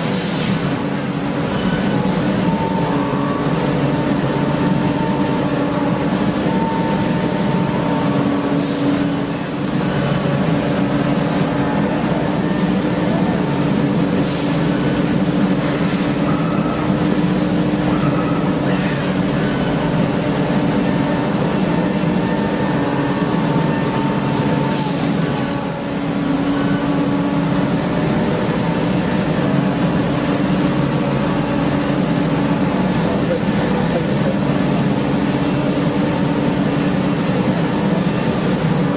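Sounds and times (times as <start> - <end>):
factory machinery drone: 0.0 - 38.9.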